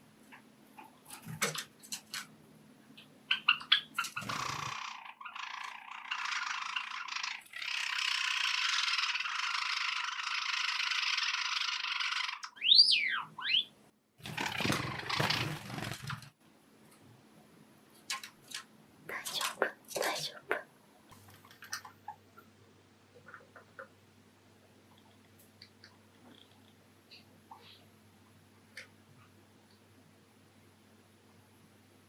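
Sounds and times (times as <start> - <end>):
sparrows chirping and clicking: 3.0 - 13.7.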